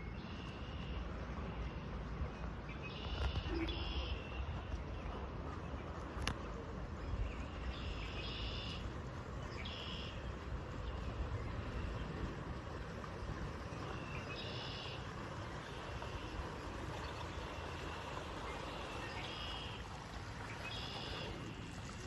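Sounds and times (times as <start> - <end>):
low background rumble: 0.0 - 22.0
bird calls high-pitched: 7.8 - 8.8.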